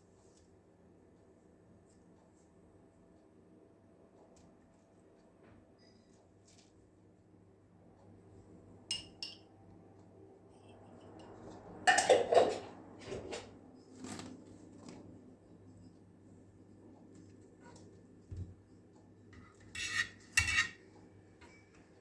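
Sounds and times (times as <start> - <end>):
dishes and cutlery clinking: 8.9 - 9.5, 11.0 - 13.4, 19.4 - 20.8.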